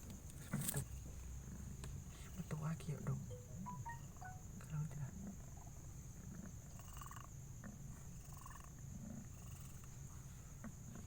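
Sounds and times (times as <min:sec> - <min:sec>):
cat purring: 0:05.0 - 0:11.0.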